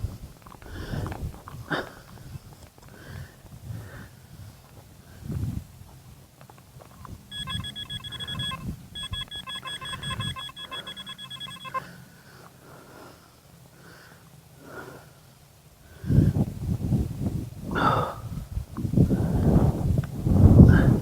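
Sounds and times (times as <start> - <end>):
metal detector beeping: 7.3 - 11.9.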